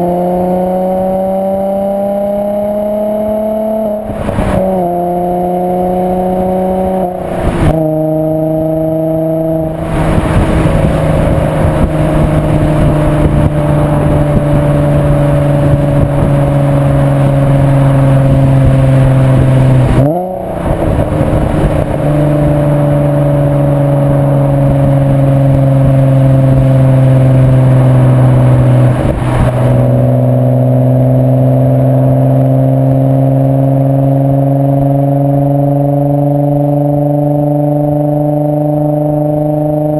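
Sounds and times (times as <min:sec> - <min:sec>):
car engine running under load: 0:00.0 - 0:39.9
loud exhaust note: 0:00.0 - 0:39.9.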